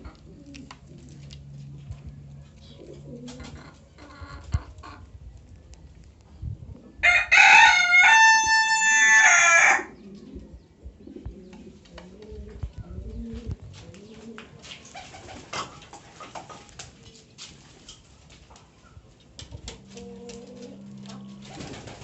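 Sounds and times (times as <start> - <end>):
pigeons cooing: 0.0 - 5.2, 9.5 - 17.4, 19.6 - 22.0
rooster crowing: 7.0 - 9.9.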